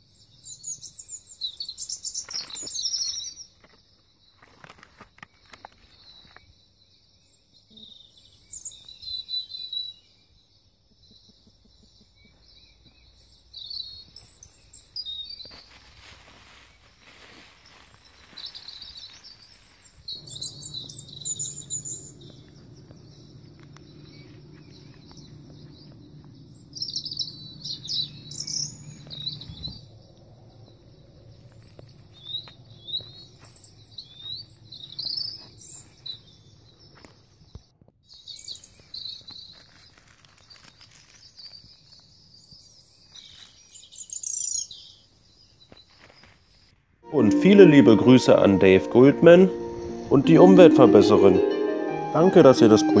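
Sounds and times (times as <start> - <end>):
small birds chirping: 0.0 - 46.8
low steady hum: 20.2 - 27.7.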